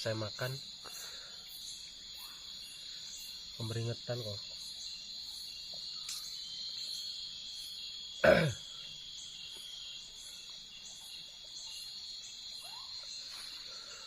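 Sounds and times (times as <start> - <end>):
insects chorus shrilling: 0.0 - 14.0
man's short vocal sound: 8.2 - 8.6.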